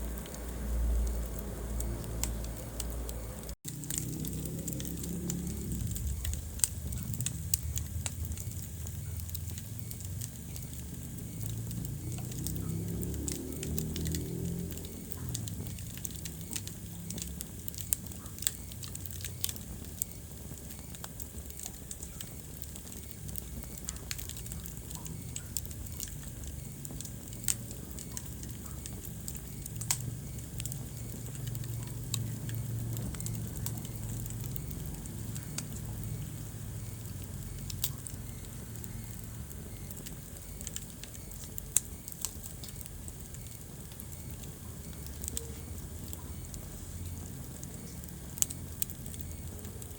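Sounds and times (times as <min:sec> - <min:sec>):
wood fire crackling: 0:00.0 - 0:49.9.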